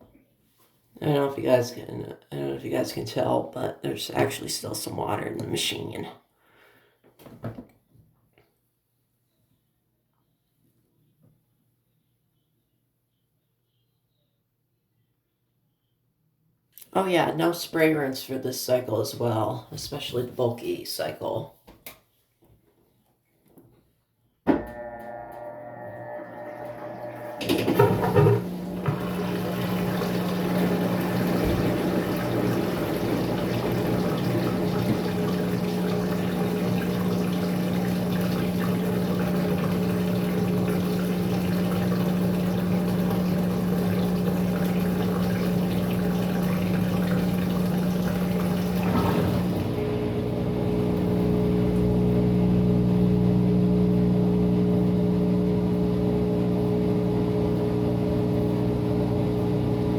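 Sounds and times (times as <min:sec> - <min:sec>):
washer motor hum: 0:01.0 - 0:06.1, 0:24.5 - 0:59.9
drain pump humming: 0:24.5 - 0:59.9
water rushing out: 0:26.7 - 0:50.2.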